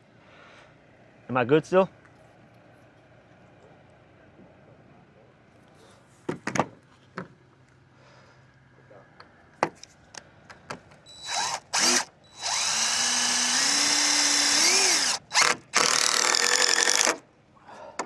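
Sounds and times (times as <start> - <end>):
power drill driving screws: 11.1 - 17.2.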